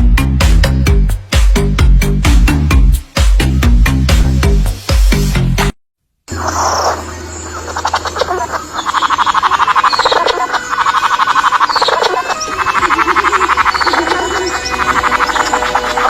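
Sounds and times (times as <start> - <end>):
animal pulsed croaking: 6.3 - 16.0.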